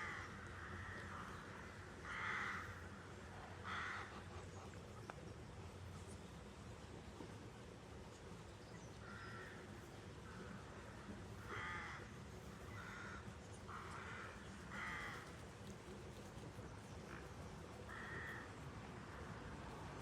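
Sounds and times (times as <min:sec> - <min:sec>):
bird harsh caw calls: 0:00.0 - 0:02.8, 0:03.6 - 0:04.1, 0:11.5 - 0:12.1, 0:12.7 - 0:15.2, 0:17.9 - 0:18.5
faint outdoor background: 0:00.0 - 0:20.0.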